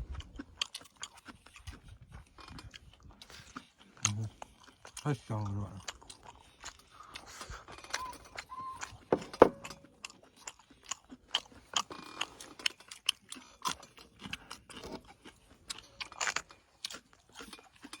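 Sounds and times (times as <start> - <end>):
crunching bites of greens: 0.0 - 7.9, 9.8 - 18.0.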